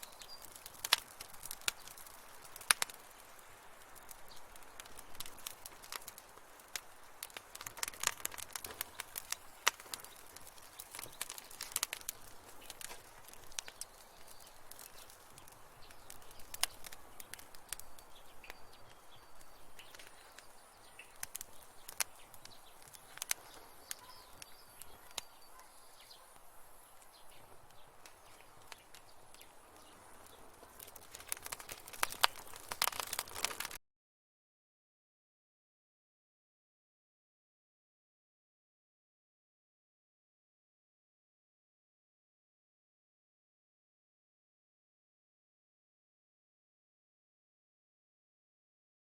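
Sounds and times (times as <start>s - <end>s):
wood fire crackling: 0.0s - 33.8s.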